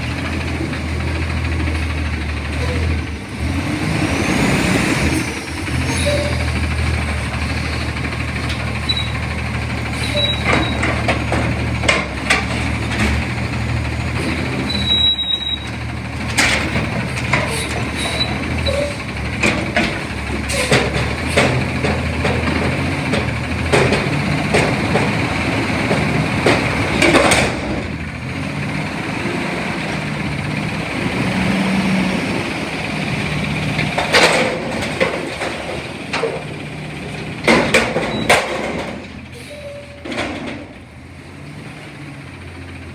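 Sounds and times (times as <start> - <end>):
garbage truck engine idling: 0.0 - 42.9
sharp knocks and clanks: 10.2 - 13.3, 16.2 - 27.9, 33.8 - 36.6, 37.2 - 39.2.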